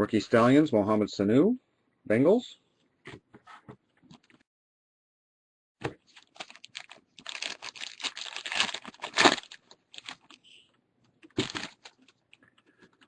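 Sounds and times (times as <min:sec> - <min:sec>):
foil card pack crinkling: 0:06.1 - 0:10.4, 0:11.2 - 0:12.2.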